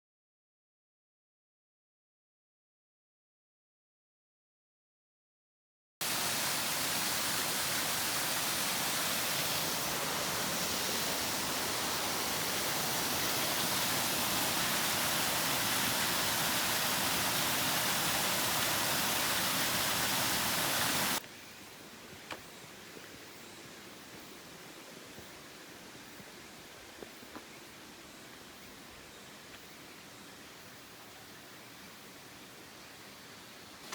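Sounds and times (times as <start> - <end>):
waterfall rushing: 6.0 - 21.2.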